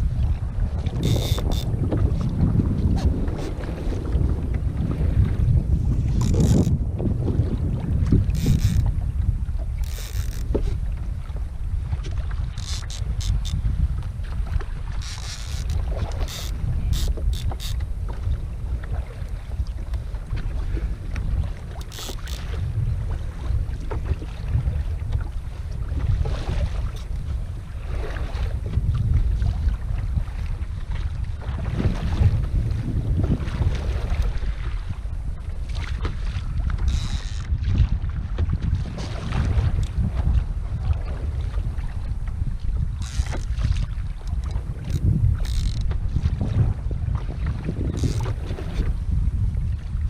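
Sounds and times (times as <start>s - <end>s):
water splashing against hull: 0.0s - 50.0s
wind buffeting microphone: 0.0s - 50.0s
small clicks: 21.8s - 22.5s.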